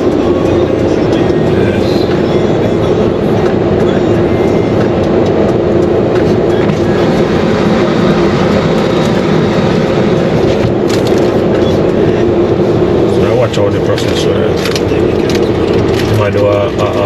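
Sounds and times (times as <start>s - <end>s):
car wash machinery rumbling: 0.0s - 17.0s.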